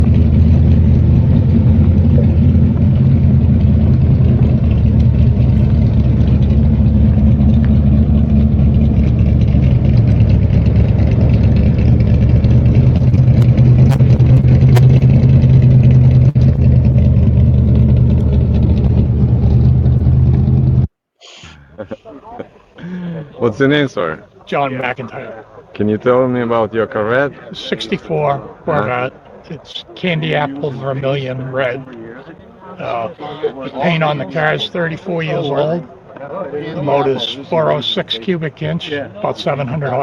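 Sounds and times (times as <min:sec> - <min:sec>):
car engine idling loudly: 0:00.0 - 0:20.9.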